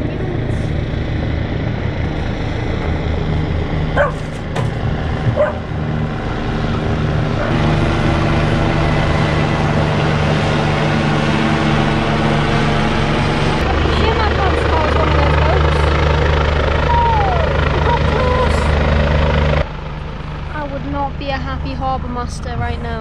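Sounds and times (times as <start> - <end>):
helicopter drone: 0.0 - 23.0
dog barking: 4.0 - 4.3, 5.3 - 5.7.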